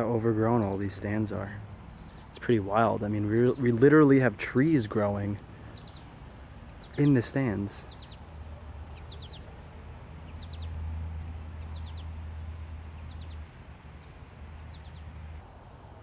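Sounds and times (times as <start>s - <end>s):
bird chirping: 0.0s - 15.4s.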